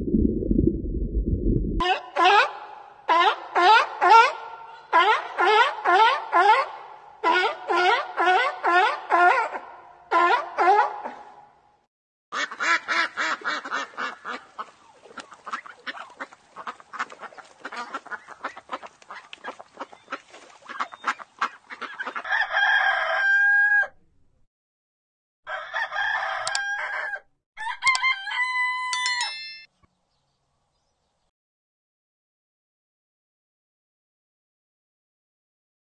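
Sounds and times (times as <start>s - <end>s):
chickens clucking: 12.4s - 22.4s
rooster crowing: 22.2s - 24.0s, 25.5s - 29.3s.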